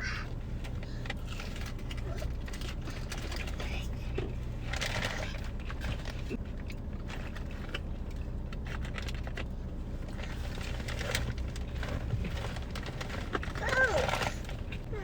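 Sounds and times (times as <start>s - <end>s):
chewing and crunching fried food: 0.1s - 15.0s.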